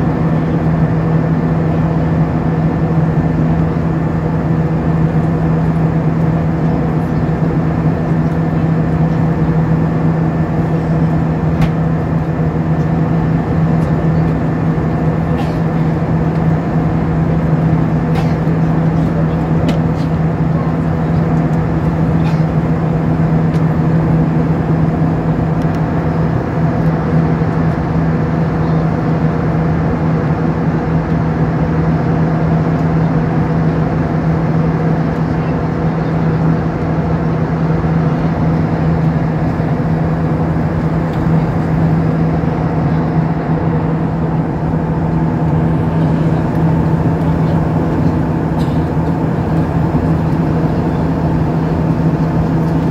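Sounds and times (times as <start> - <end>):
airliner cabin engine drone: 0.0 - 52.9.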